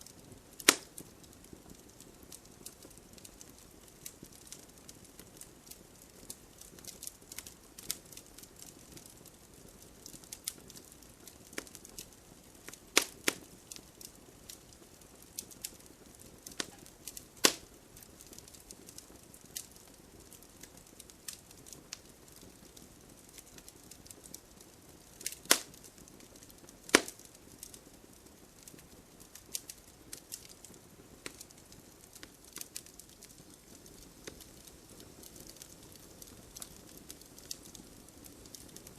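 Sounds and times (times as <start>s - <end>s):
campfire crackling: 0.0s - 38.9s
sharp wood pops: 17.4s - 17.6s, 25.5s - 25.7s, 26.9s - 27.2s.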